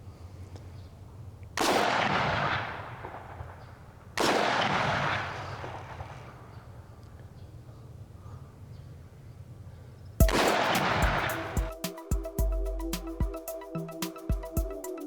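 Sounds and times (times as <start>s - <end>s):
rifle shots with echo: 1.6s - 6.5s.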